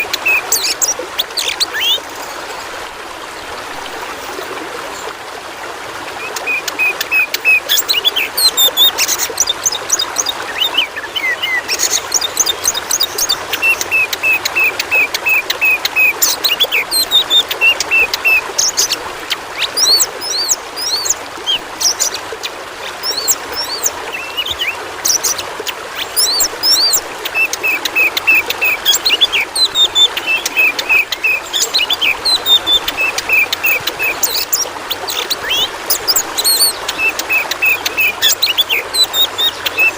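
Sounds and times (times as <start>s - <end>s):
bird singing whistled song: 0.0s - 2.0s, 6.4s - 19.0s, 23.0s - 25.4s, 26.1s - 39.9s
running water trickling: 0.0s - 39.9s.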